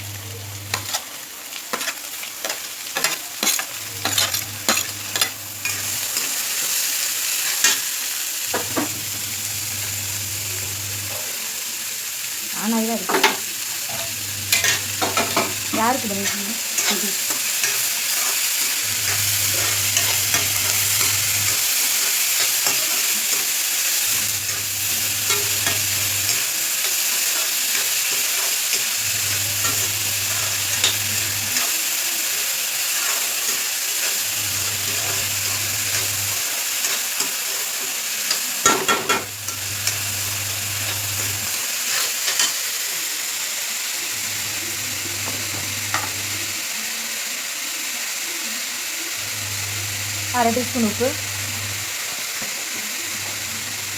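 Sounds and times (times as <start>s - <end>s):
food sizzling in hot oil: 0.0s - 53.9s
spoon clattering against pan: 33.0s - 40.0s.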